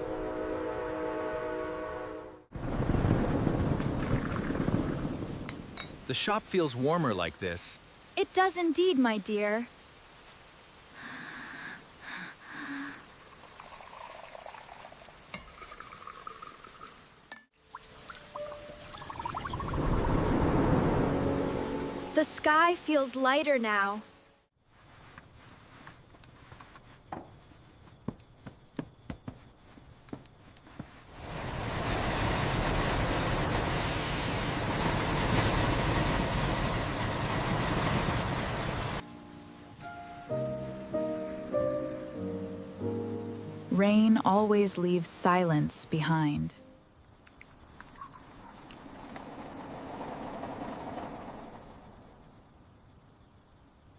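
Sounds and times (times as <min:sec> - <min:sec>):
dripping ticks: 0:09.8 - 0:19.8, 0:47.0 - 0:49.3
cricket trilling: 0:24.6 - 0:31.6, 0:46.5 - 0:53.9
train rushing rumble: 0:31.2 - 0:39.0, 0:49.0 - 0:52.0.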